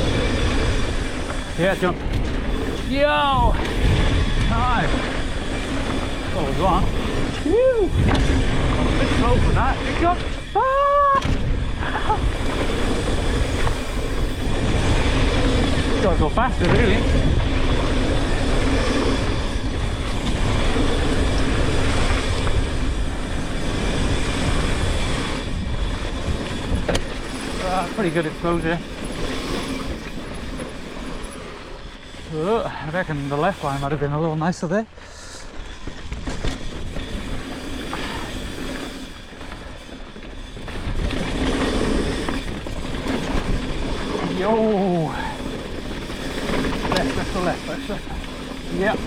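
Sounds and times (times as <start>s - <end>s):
wind on microphone: 0.0s - 34.0s
tyres rumbling on dirt: 0.0s - 34.8s, 35.4s - 49.0s
bike rattling: 0.0s - 49.0s.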